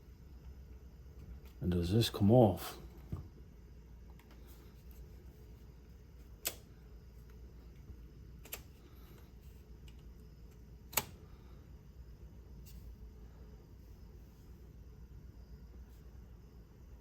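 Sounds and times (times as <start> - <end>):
faint steady low hum: 0.0 - 17.0
sharp plastic clicks: 6.4 - 6.7, 9.8 - 11.2.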